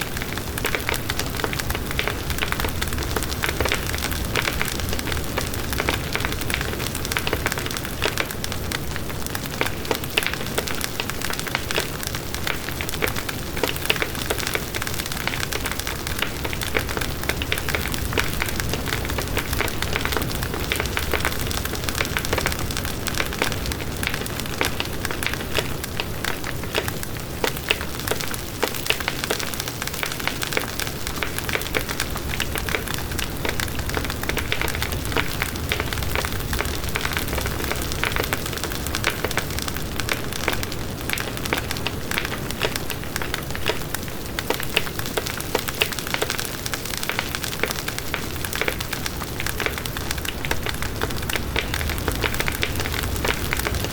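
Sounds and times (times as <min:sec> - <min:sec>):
campfire crackling: 0:00.0 - 0:53.9.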